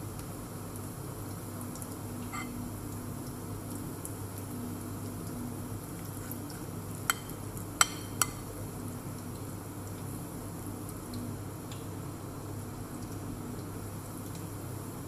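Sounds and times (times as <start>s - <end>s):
oil sizzling in a pan: 1.9s - 4.9s, 5.7s - 10.6s
spoon clinking against a dish: 2.3s - 2.6s, 7.1s - 8.5s.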